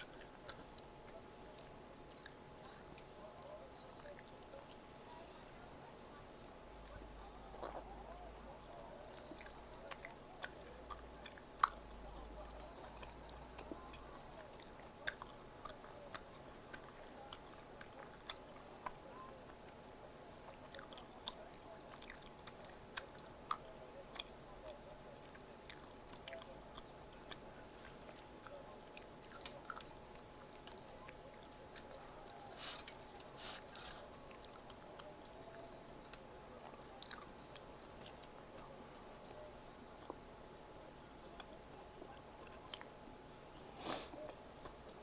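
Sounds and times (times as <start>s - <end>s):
chewing crunchy snack: 0.0s - 4.8s, 7.5s - 7.9s, 9.1s - 11.9s, 25.2s - 38.7s
crackles of crisp food: 0.0s - 45.0s
faint steady hum: 0.0s - 45.0s.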